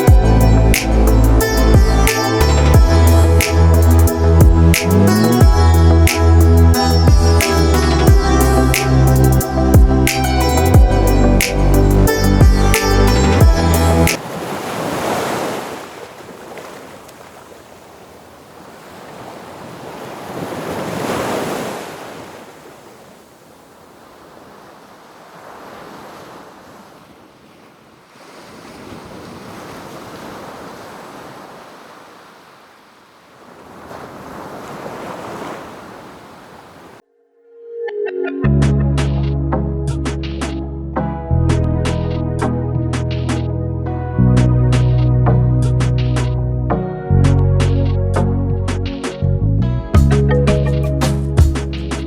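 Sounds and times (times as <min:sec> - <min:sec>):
sea waves breaking on shore: 0:13.5 - 0:37.0.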